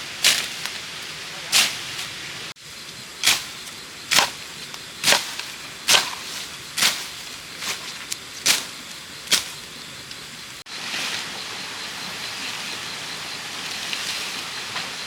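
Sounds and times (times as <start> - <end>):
blade chopping bamboo: 3.2 - 7.8, 9.3 - 9.6.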